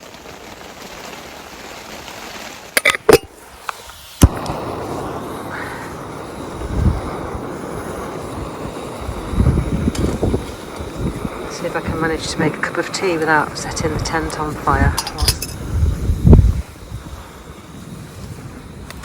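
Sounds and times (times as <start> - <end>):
gas burner rushing: 2.7 - 19.0
low rumbles: 4.2 - 17.4.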